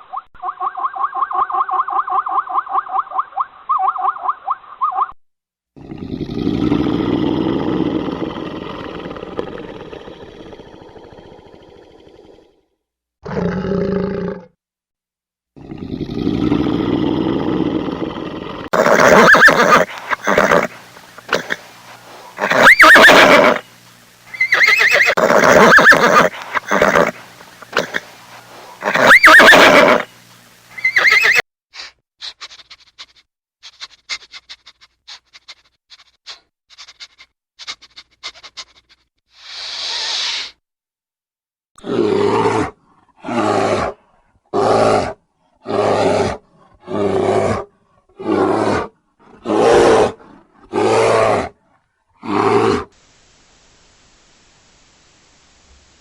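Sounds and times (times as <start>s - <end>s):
pitched animal calls: 0.0s - 5.2s, 18.7s - 40.5s
horse neighing: 18.7s - 23.7s, 24.3s - 30.1s, 30.8s - 31.4s
short hiss: 19.8s - 22.8s, 29.9s - 40.6s.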